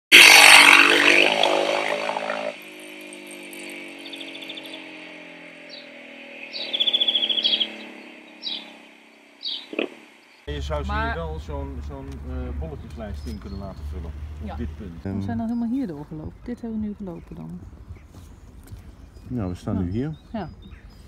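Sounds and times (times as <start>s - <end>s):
loud sound of steady tones: 0.1s - 12.0s
bird trills: 2.5s - 10.5s, 15.4s - 21.0s
small birds chirping: 2.6s - 21.0s.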